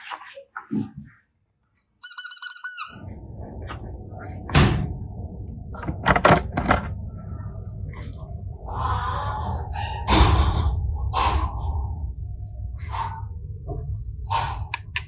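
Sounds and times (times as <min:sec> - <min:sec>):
high-pitched squeaks: 0:02.0 - 0:03.0
low rumbling noise: 0:03.0 - 0:14.4.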